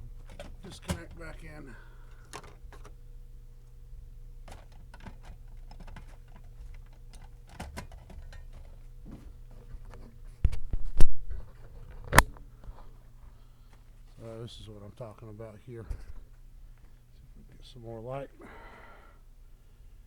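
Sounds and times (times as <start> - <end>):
faint steady hum: 0.0 - 20.0
hands handling parts clicking: 0.2 - 1.3, 2.1 - 3.0, 4.5 - 8.9.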